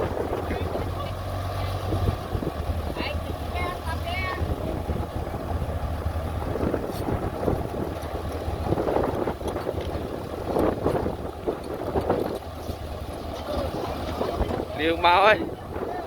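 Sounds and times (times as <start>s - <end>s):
heavy machinery engine rumble: 0.0s - 16.0s
wind buffeting microphone: 0.0s - 16.0s.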